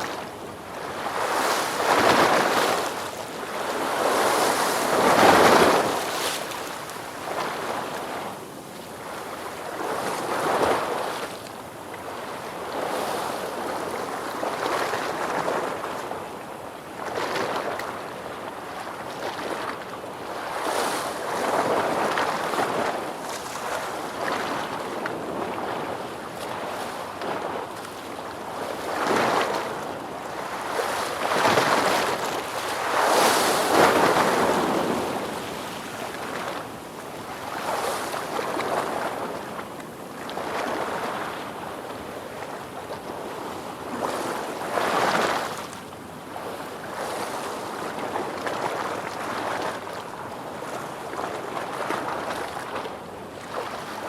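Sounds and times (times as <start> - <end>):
ocean waves breaking: 28.8 - 39.6.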